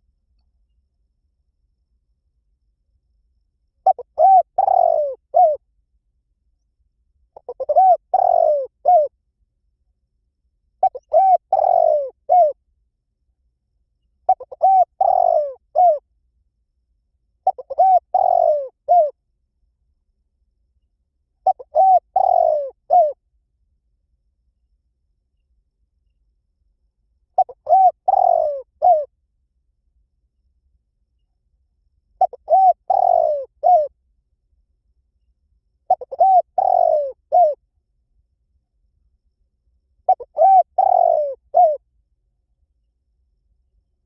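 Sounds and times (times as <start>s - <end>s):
dove cooing: 3.8s - 5.6s, 7.4s - 9.1s, 10.8s - 12.6s, 14.3s - 16.0s, 17.4s - 19.2s, 21.4s - 23.2s, 27.4s - 29.1s, 32.2s - 33.9s, 35.9s - 37.6s, 40.1s - 41.8s.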